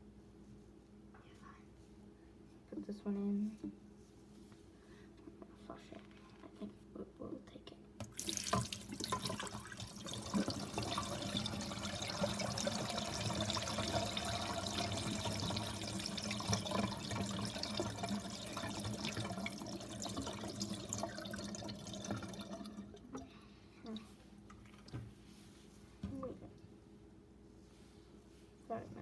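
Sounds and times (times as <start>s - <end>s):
running water through bowl: 8.0s - 23.2s
toilet flushing: 8.0s - 23.3s.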